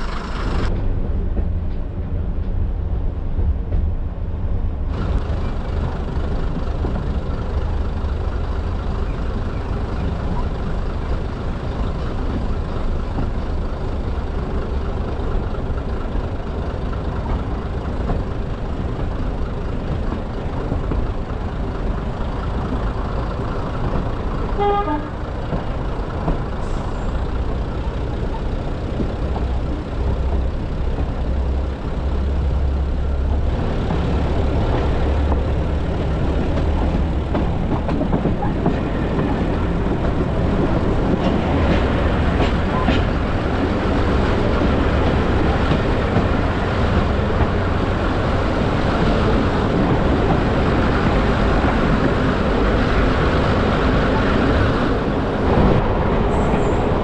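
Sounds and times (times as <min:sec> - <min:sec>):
approaching diesel train: 0:00.0 - 0:57.0
train rumbling on track: 0:00.0 - 0:57.0
train horn toot: 0:24.6 - 0:25.2.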